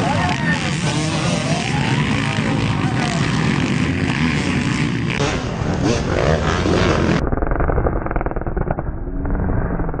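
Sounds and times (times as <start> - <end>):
dirt bike engines revving: 0.0 - 7.2.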